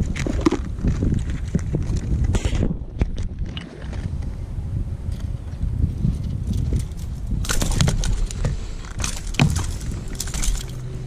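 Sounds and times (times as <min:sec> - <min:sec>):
wind rumbling on microphone: 0:00.0 - 0:11.0
knocks and clatter in a kayak: 0:06.1 - 0:10.8.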